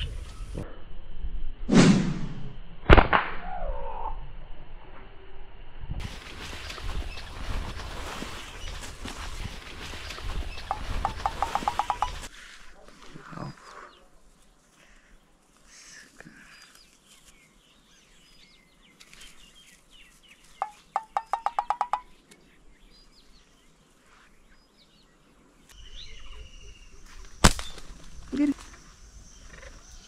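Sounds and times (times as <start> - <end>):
bird calling rising notes: 9.9 - 12.3
faint high bird chirps: 25.6 - 30.0.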